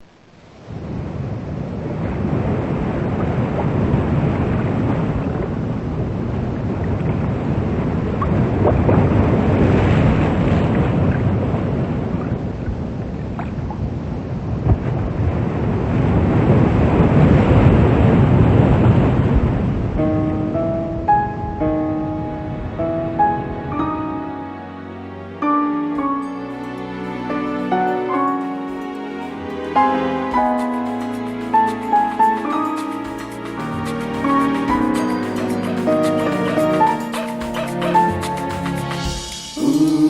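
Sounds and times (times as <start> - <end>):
water rushing: 0.0 - 40.0
wind buffeting microphone: 0.6 - 24.3.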